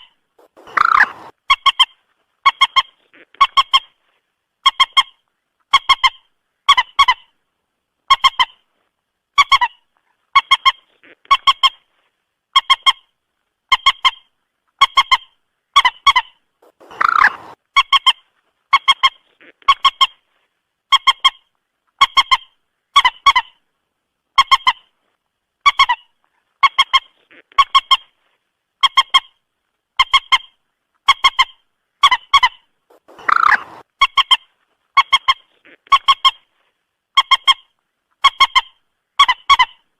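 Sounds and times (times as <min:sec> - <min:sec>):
harsh moorhen call: 0:00.4 - 0:01.9, 0:15.8 - 0:18.1, 0:31.2 - 0:34.4
moorhen honking call: 0:00.5 - 0:01.3, 0:16.7 - 0:17.6, 0:33.0 - 0:33.8.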